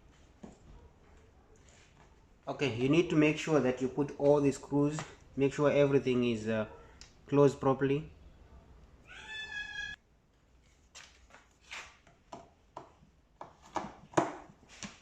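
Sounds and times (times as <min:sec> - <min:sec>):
cat meowing: 0:09.0 - 0:10.0.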